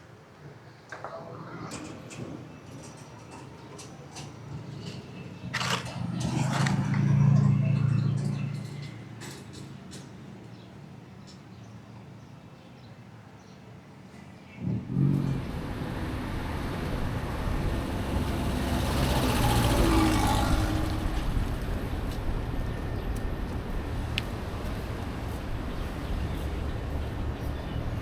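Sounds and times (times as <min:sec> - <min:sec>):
road noise hum: 0:00.9 - 0:12.1, 0:14.2 - 0:28.0
motor vehicle passing: 0:04.6 - 0:09.7, 0:14.6 - 0:28.0.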